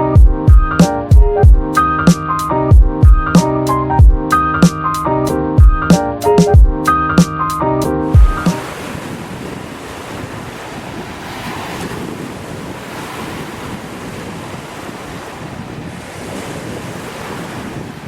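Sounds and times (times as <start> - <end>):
wind buffeting microphone: 8.2 - 18.0.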